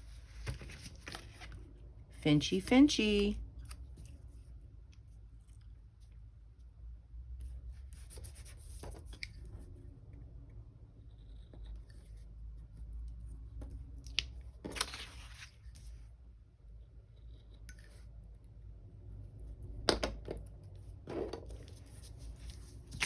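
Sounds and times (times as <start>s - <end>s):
low steady hum: 0.0s - 23.0s
paper rustling: 0.1s - 1.6s, 14.7s - 15.9s, 21.6s - 23.0s.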